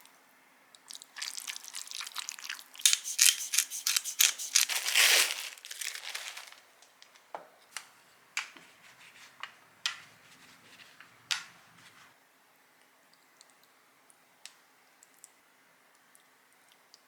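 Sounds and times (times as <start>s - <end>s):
crinkling and rustling: 1.1s - 12.1s.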